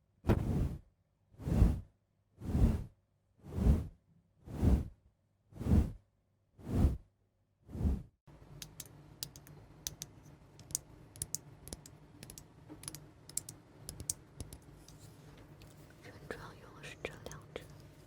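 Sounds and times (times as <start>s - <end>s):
small objects clicking and tapping: 8.5s - 15.7s.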